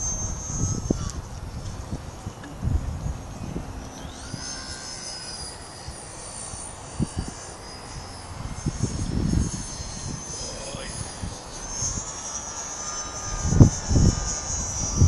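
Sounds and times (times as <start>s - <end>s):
low rumble: 0.0s - 12.1s
aircraft engines whining: 0.0s - 15.0s
dull low thumps: 1.6s - 4.0s.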